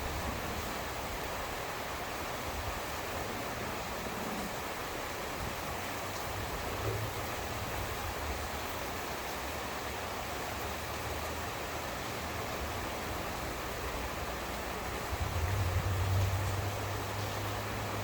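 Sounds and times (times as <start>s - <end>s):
heavy rain hiss: 0.0s - 18.0s
faint low thunder rumble: 14.7s - 18.0s.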